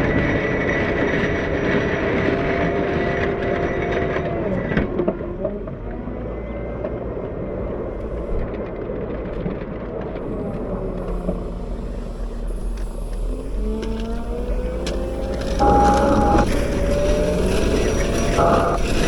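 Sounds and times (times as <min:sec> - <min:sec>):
wheel loader diesel engine: 0:09.9 - 0:19.0.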